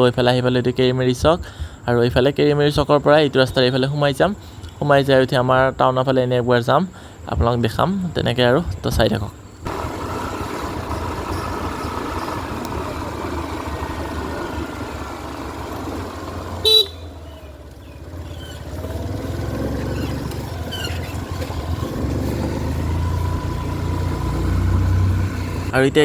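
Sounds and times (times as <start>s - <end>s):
road noise rumble: 0.0s - 26.0s
vehicle horn toot: 16.5s - 17.4s.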